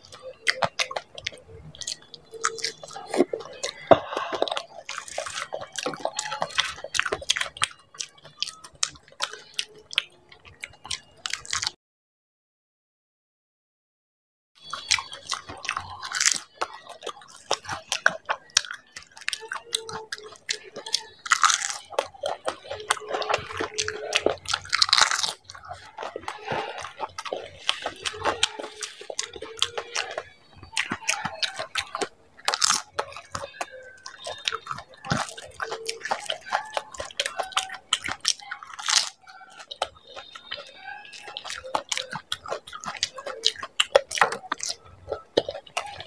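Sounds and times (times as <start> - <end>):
wet mouth sounds: 0.0 - 11.8, 14.6 - 46.0
crisp shells crunching: 14.7 - 46.0.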